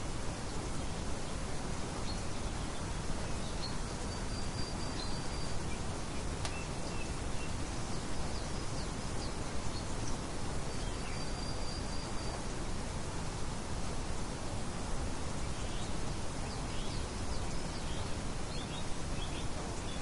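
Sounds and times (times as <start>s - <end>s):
wind: 0.0s - 20.0s
birds chirping: 2.0s - 12.5s, 15.4s - 20.0s.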